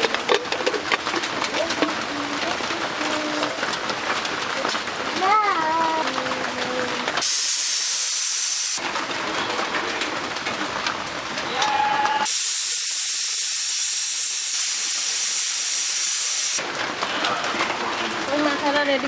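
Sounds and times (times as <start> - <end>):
food sizzling in hot oil: 7.2 - 8.8, 12.2 - 16.6.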